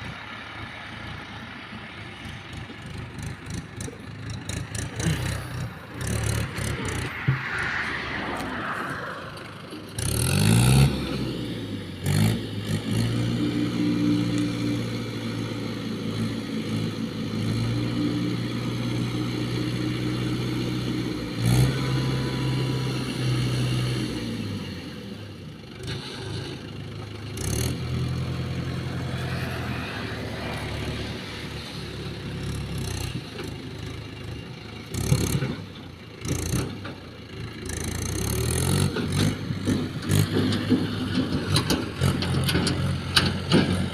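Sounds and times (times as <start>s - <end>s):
diesel engine revving: 0.0s - 43.9s
metal clanks and scrapes: 38.8s - 43.9s.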